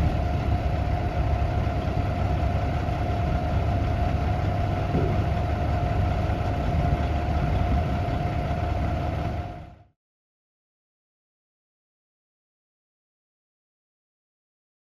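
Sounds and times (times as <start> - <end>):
steady whine: 0.0 - 9.1
diesel truck engine idling: 0.0 - 9.9.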